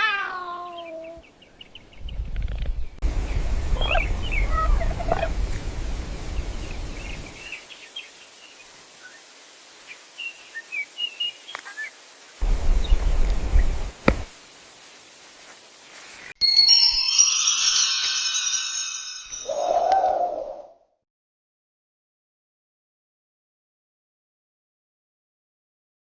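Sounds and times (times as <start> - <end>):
birds chirping: 0.4 - 5.5, 6.2 - 13.9
low rumbling noise: 1.8 - 7.4, 12.4 - 14.3.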